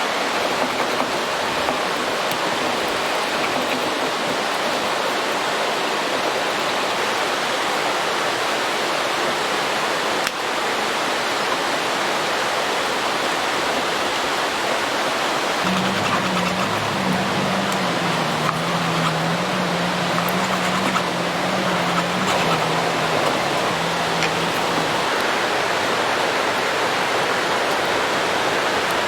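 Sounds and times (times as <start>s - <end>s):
steady rushing hiss: 15.3s - 25.6s.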